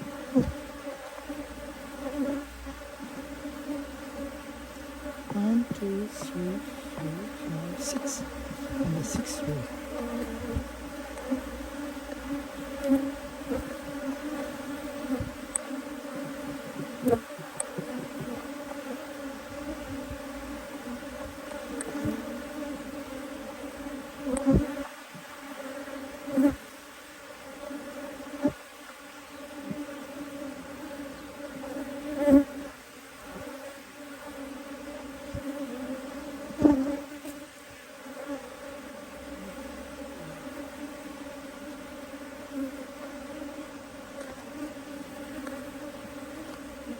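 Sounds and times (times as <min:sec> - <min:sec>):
bees buzzing: 0:00.0 - 0:46.9.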